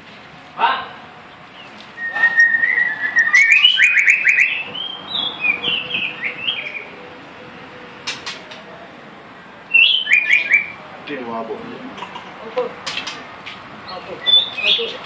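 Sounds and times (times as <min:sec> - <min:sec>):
songbird singing whistled phrase: 0:01.6 - 0:06.9, 0:09.7 - 0:10.8, 0:13.9 - 0:15.0.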